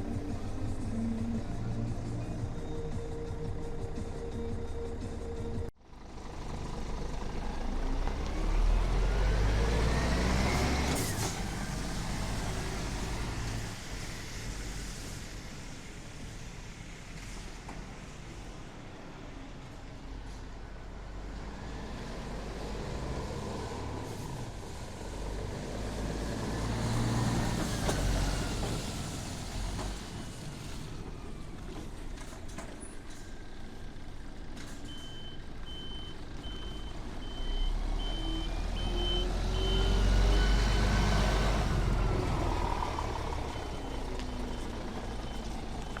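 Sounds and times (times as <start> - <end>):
truck engine running: 0.0 - 9.6
reversing alarm beeping: 34.9 - 41.2.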